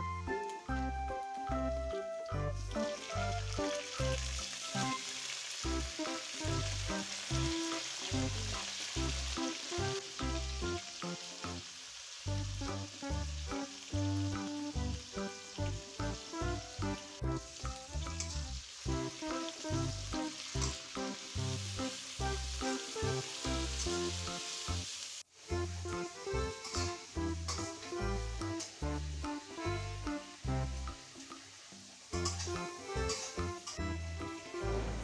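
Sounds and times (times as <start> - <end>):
background music with a beat: 0.0 - 5.0, 9.0 - 11.6, 12.3 - 24.4, 25.5 - 31.4, 32.2 - 35.0
food sizzling in hot oil: 0.2 - 35.0
metal spatula stirring in a wok: 26.6 - 27.9.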